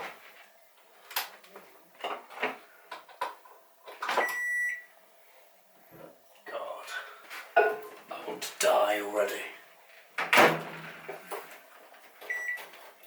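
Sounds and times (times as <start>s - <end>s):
microwave electronic beep: 4.2s - 4.9s, 12.3s - 12.6s.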